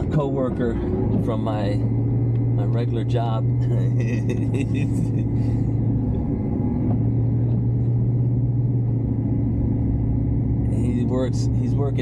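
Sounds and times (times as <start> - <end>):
engine and road noise drone: 0.0 - 12.0.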